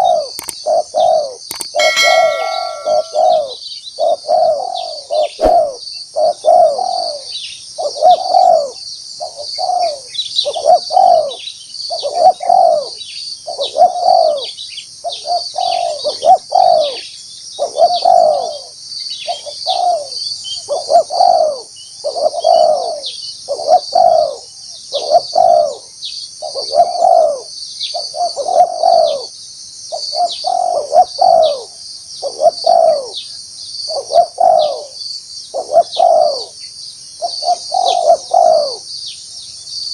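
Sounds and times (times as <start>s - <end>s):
dove cooing: 4.1s - 11.4s, 12.0s - 14.5s, 17.6s - 18.6s, 20.7s - 25.8s, 28.2s - 29.3s, 30.2s - 33.2s, 34.0s - 34.9s, 35.6s - 36.5s, 37.2s - 38.8s.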